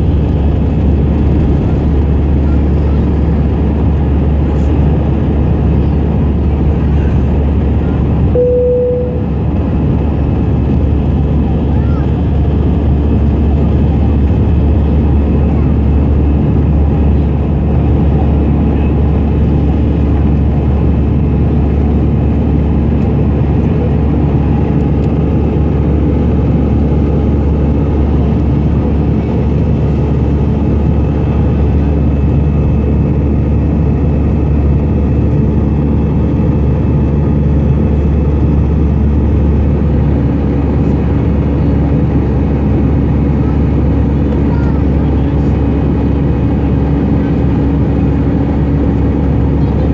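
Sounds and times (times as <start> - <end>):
jet engine cabin rumble: 0.0 - 49.9
faint steady tones: 8.4 - 9.4.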